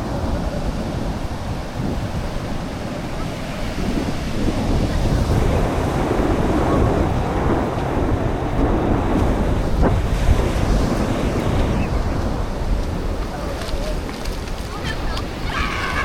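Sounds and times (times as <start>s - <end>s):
surf breaking on shore: 0.0s - 16.0s
wind buffeting microphone: 0.0s - 16.0s.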